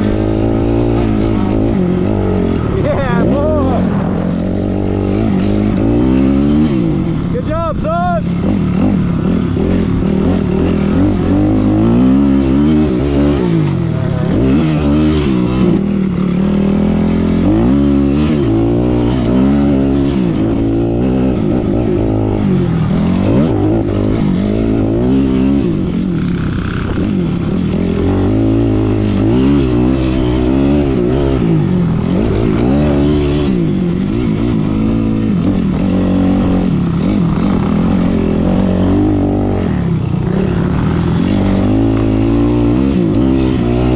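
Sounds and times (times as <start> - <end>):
motocross bike engine revving: 0.0 - 43.9.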